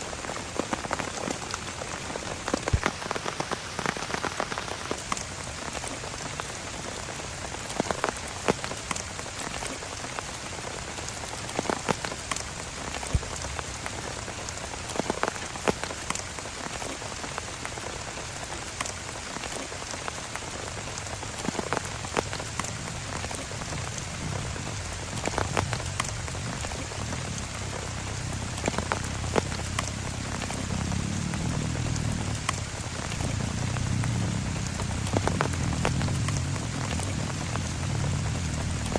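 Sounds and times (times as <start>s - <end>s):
heavy rain drops tapping: 0.0s - 38.9s.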